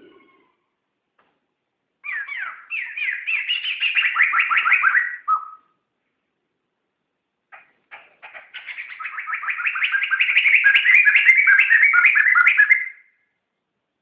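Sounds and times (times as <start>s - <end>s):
bird singing whistled notes: 2.0s - 5.8s, 8.6s - 13.2s.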